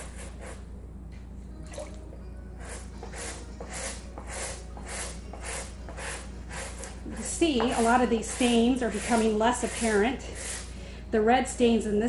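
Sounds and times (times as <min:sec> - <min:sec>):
brush scrubbing wet mat: 0:07.6 - 0:10.7.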